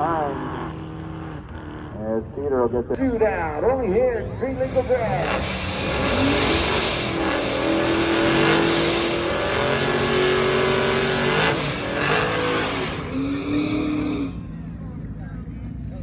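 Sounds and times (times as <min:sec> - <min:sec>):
racing car engines accelerating: 0:00.0 - 0:16.0.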